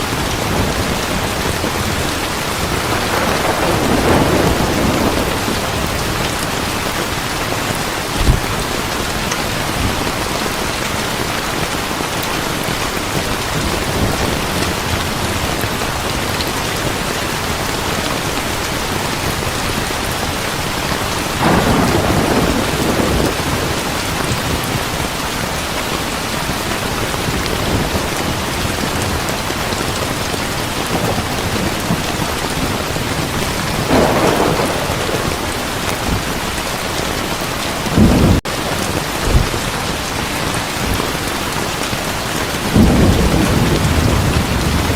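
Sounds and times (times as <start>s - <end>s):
heavy rain falling: 0.0s - 44.9s
thunder rolling: 0.2s - 8.9s, 21.4s - 25.0s, 30.9s - 39.7s, 42.6s - 44.9s.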